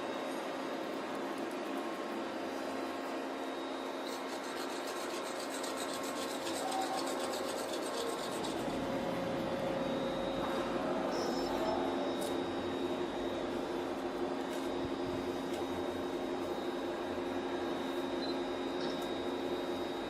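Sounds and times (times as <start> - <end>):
steady mechanical hum: 0.0 - 20.0
rhythmic rasping scrape: 4.0 - 8.9.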